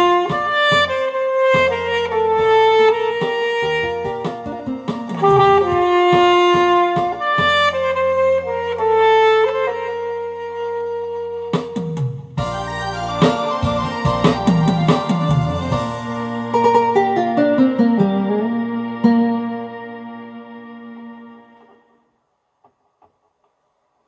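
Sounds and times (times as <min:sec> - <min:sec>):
alto saxophone melody: 0:00.0 - 0:16.8
backing track with bass and keyboard: 0:00.0 - 0:21.8.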